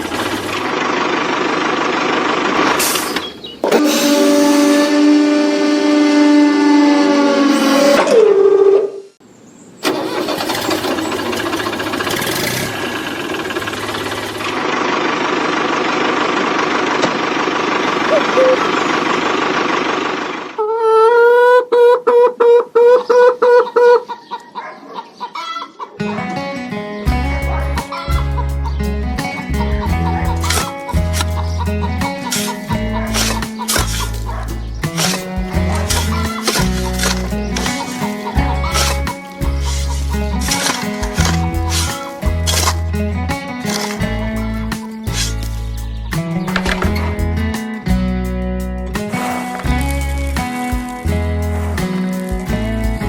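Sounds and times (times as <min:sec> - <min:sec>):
noisy motor: 0:00.0 - 0:04.3, 0:10.5 - 0:20.6, 0:32.3 - 0:45.7
high-pitched clucks: 0:20.6 - 0:26.4, 0:27.5 - 0:42.8
background music with bass line: 0:27.0 - 0:53.0.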